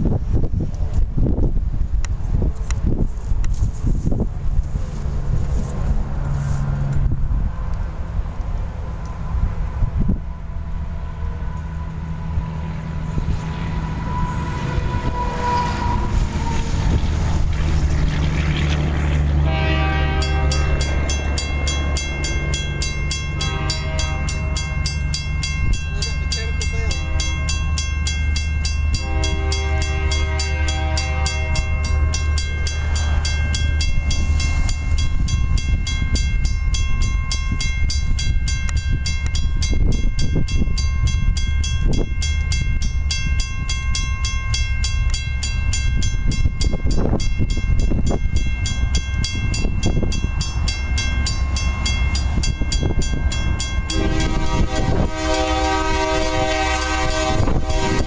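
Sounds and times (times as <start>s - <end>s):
train locomotive rumble: 0.0s - 58.0s
train air horn: 10.0s - 21.2s, 23.2s - 24.9s, 26.7s - 27.6s, 28.9s - 33.4s, 53.9s - 58.0s
crossing bell ringing: 10.1s - 58.0s.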